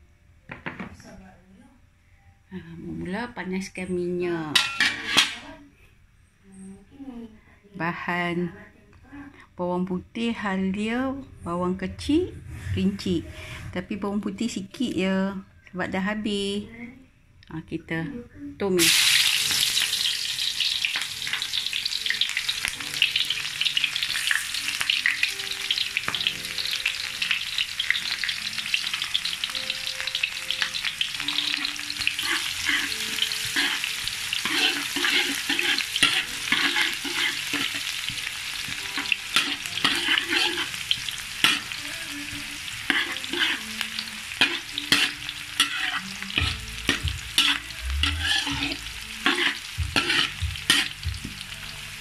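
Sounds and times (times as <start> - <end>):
spatula scraping a pan: 4.6 - 5.4, 31.2 - 51.4
vegetables sizzling in hot oil: 18.8 - 52.0.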